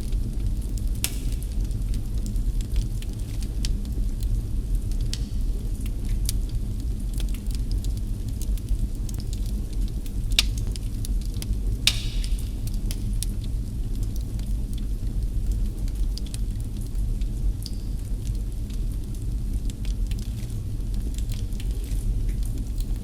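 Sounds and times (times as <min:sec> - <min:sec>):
wood fire crackling: 0:00.1 - 0:23.0
fire pops: 0:00.7 - 0:06.5, 0:10.1 - 0:14.5.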